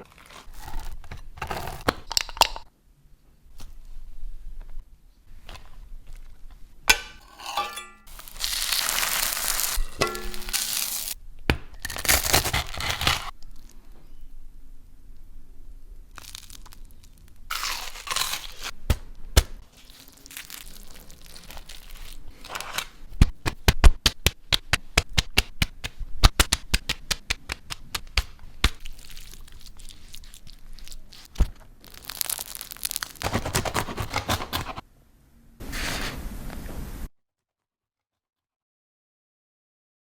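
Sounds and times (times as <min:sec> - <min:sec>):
crusty sandwich crunching: 0:00.0 - 0:02.4, 0:08.1 - 0:11.2, 0:11.8 - 0:13.8, 0:16.1 - 0:18.8, 0:19.6 - 0:23.0, 0:27.5 - 0:34.8
rustling: 0:03.5 - 0:11.2
sharp crackles: 0:08.1 - 0:11.2, 0:16.1 - 0:18.7, 0:28.7 - 0:33.6.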